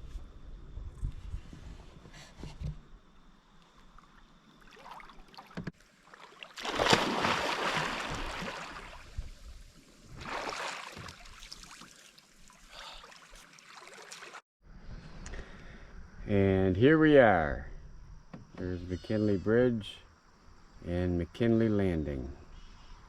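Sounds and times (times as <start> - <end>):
kayak paddle strokes splashing: 3.8 - 14.4.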